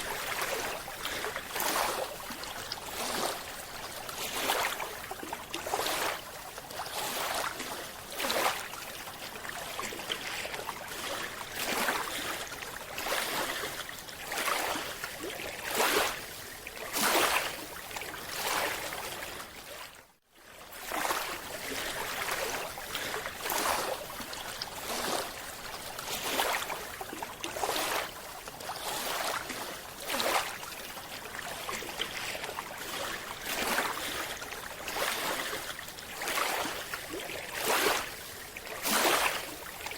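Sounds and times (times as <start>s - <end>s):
water rushing and bubbling: 0.0s - 19.9s, 20.7s - 39.9s.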